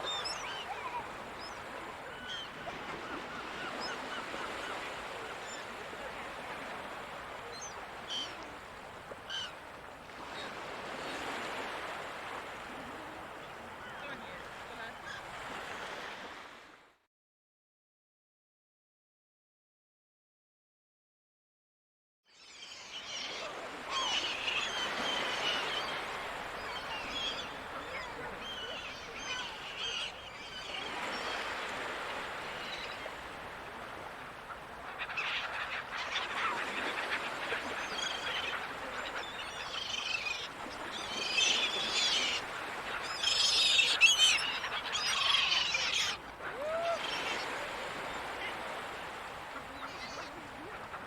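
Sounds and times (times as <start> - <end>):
seagulls calling: 0.0 - 8.4, 22.9 - 51.0
ocean surf washing: 23.4 - 51.0.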